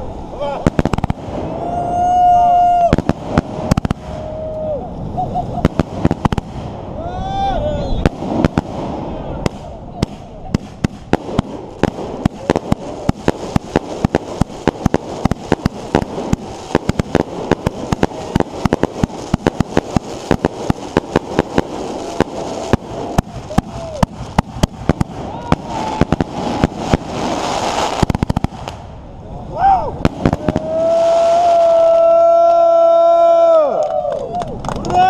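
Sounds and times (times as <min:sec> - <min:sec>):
fireworks bangs and cracks: 0:00.0 - 0:07.0, 0:08.0 - 0:29.1, 0:29.9 - 0:35.0
fireworks crackling: 0:00.0 - 0:35.0.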